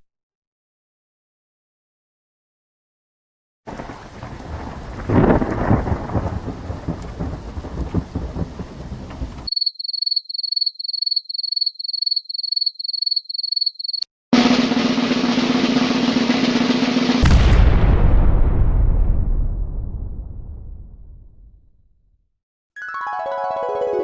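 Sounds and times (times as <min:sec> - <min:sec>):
rain hiss: 0:03.7 - 0:09.5
rolling thunder: 0:03.7 - 0:09.5, 0:14.4 - 0:21.6.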